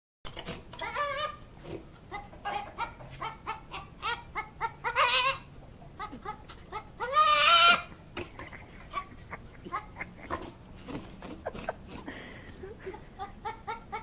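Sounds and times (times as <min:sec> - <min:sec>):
goat clucking calls: 0:02.0 - 0:10.6, 0:12.9 - 0:14.0
goat bleating loudly: 0:07.0 - 0:07.9.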